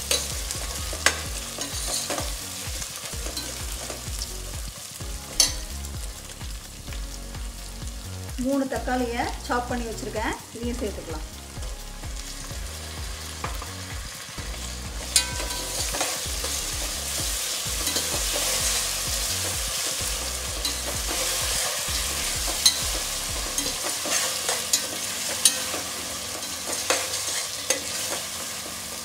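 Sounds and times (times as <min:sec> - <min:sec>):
metal spoon scraping and knocking pot: 0:00.0 - 0:02.4, 0:14.4 - 0:16.6, 0:19.4 - 0:28.2
tomatoes sizzling in hot oil: 0:00.0 - 0:29.0.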